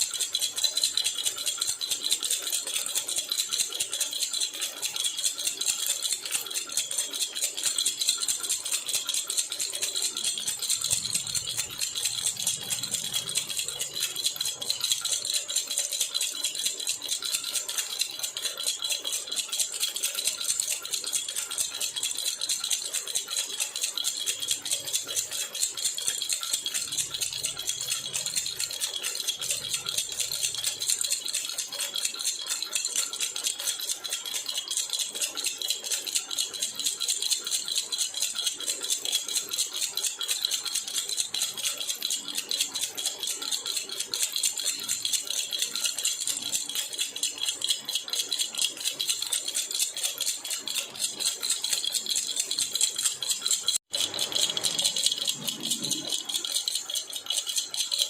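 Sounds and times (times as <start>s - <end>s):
baby rattle jingling: 52.3s - 58.0s.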